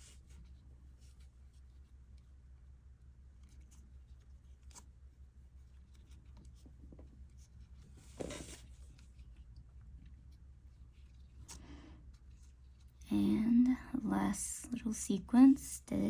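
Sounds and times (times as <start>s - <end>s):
low steady hum: 0.0s - 16.0s
crochet hook rubbing yarn: 3.4s - 9.4s.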